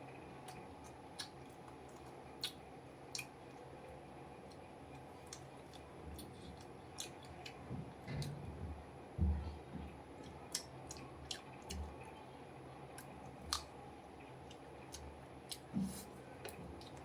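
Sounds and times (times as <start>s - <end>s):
person chewing food: 0.4s - 3.7s, 4.4s - 8.4s, 10.2s - 12.1s, 12.9s - 13.8s, 14.4s - 17.0s
soft low thumps: 7.7s - 10.0s.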